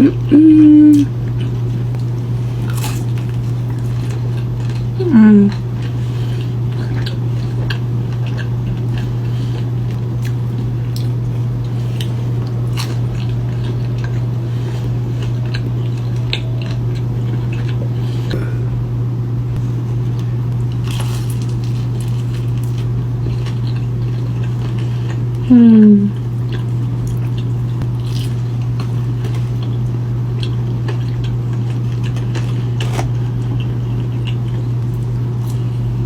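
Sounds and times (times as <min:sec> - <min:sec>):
person chewing and biting: 0:00.0 - 0:18.8, 0:19.6 - 0:36.0
steady low hum: 0:00.0 - 0:36.0.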